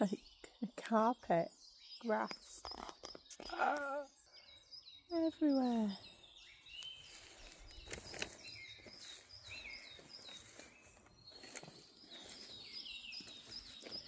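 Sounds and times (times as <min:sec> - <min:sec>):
birds chirping: 0:00.0 - 0:14.0
footsteps on forest floor: 0:06.8 - 0:14.0.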